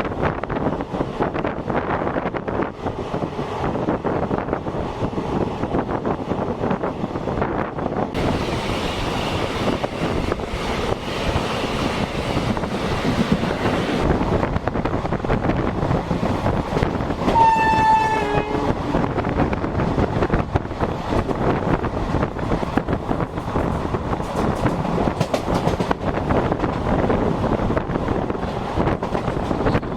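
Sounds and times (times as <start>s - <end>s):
train wheels rumbling on rail: 0.0s - 29.9s
train horn: 17.3s - 19.1s.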